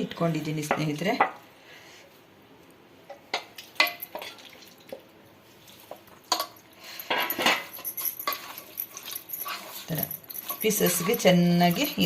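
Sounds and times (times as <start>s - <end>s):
dishes and utensils clinking: 3.2s - 4.6s, 5.8s - 12.0s.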